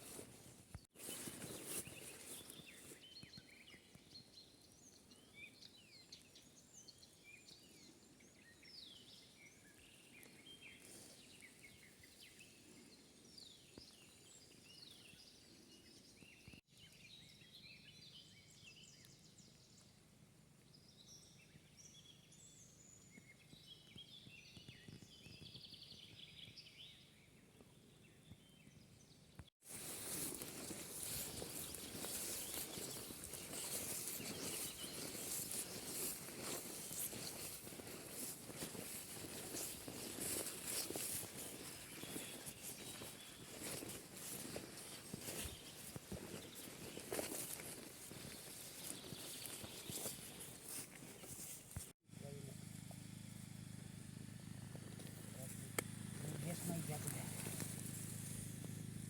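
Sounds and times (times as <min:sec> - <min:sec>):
birds chirping and trilling: 0:20.8 - 0:51.5.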